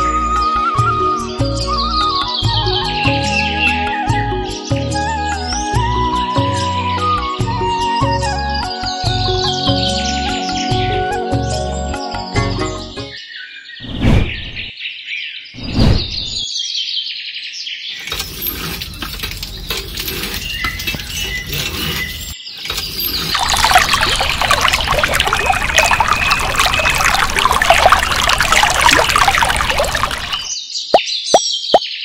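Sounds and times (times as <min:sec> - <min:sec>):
birds chirping: 0:12.6 - 0:16.7, 0:17.8 - 0:32.0
water pouring into pool: 0:18.0 - 0:30.5.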